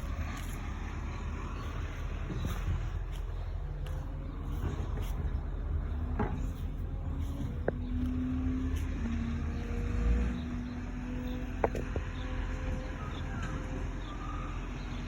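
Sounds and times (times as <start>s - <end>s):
garbage truck engine rumbling: 0.0s - 15.0s.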